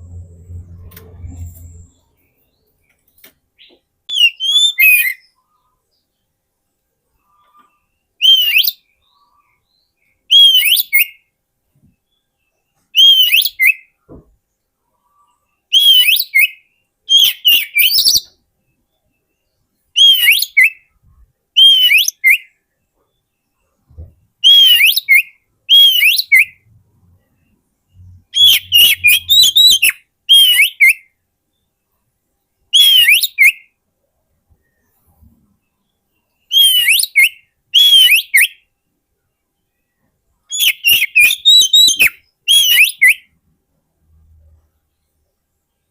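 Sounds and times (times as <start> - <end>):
bird singing whistled phrases: 4.1 - 5.3, 8.2 - 8.9, 10.3 - 11.2, 13.0 - 13.9, 15.7 - 18.4, 20.0 - 20.9, 21.6 - 22.6, 24.4 - 26.6, 28.0 - 31.1, 32.7 - 33.7, 36.5 - 38.7, 40.5 - 43.3.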